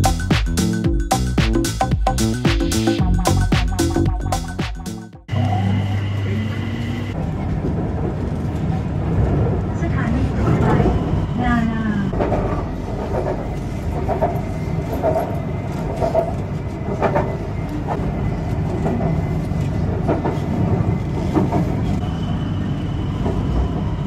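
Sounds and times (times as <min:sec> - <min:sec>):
thin high whine: 0:05.3 - 0:07.2
train rumbling in motion: 0:05.3 - 0:24.0.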